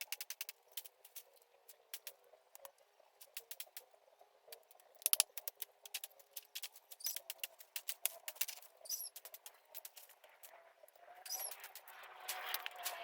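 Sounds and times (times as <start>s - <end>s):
dense crackling and clicking: 0.0s - 13.0s
brief high squeaks: 11.2s - 11.7s.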